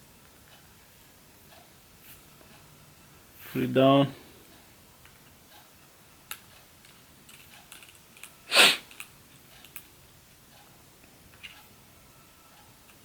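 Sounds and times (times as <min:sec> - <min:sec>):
tools clicking on hard surface: 0:06.3 - 0:09.9.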